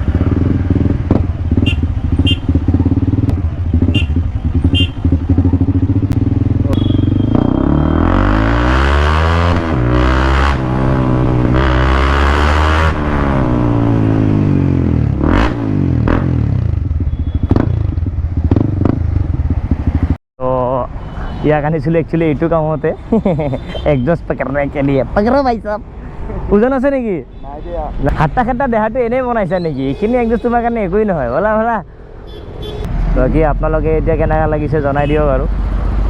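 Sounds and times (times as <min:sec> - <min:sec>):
motorcycle engine revving: 0:00.0 - 0:20.2.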